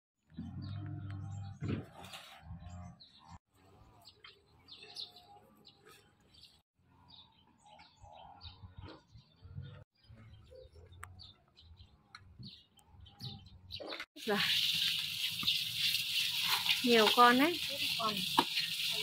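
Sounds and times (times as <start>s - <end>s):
faint birds chirping: 0.2s - 14.1s.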